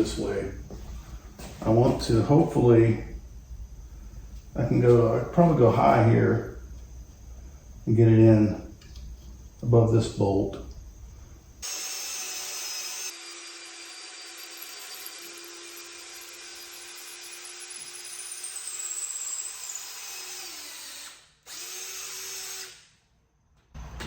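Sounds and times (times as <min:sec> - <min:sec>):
electric drill boring into wood: 0:11.6 - 0:22.9.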